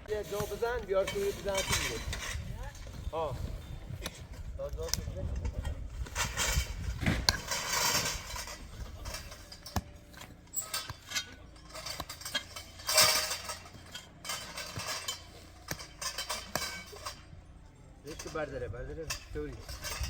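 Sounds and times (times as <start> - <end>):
hard objects clinking and clattering: 4.9 - 20.0.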